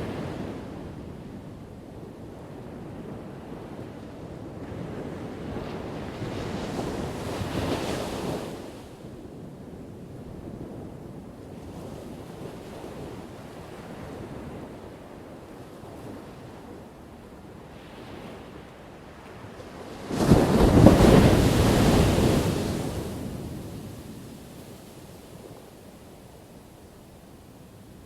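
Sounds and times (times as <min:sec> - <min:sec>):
steady wash of surf: 0:17.9 - 0:28.0
wave crashing: 0:20.1 - 0:24.2.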